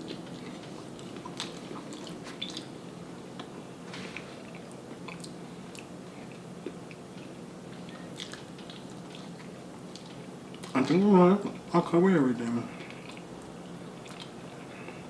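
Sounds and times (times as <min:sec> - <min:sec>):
person chewing: 0:04.5 - 0:07.0, 0:07.9 - 0:10.8, 0:12.8 - 0:15.0.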